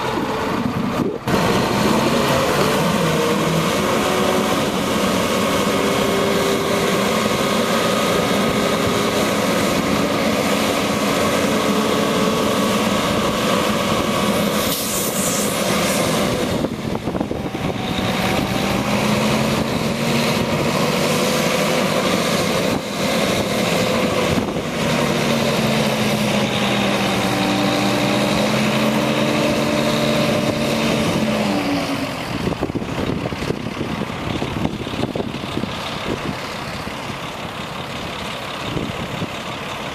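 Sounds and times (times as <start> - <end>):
diesel truck engine revving: 0.0 - 39.9
short hiss: 14.6 - 16.0.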